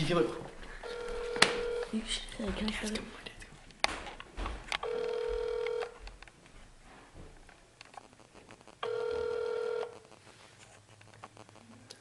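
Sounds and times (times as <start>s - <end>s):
telephone ringback tone: 0.8s - 1.9s, 4.8s - 6.0s, 8.8s - 10.0s.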